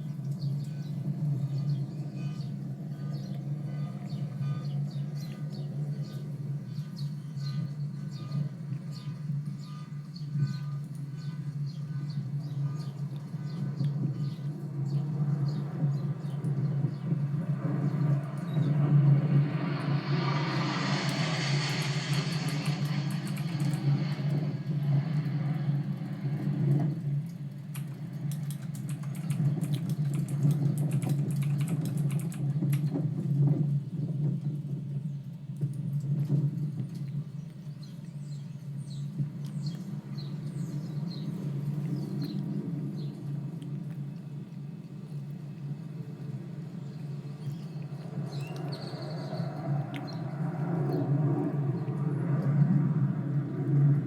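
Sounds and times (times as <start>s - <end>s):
steady low drone: 0.0s - 34.0s
low rumble: 0.0s - 54.0s
keyboard typing: 27.8s - 32.9s.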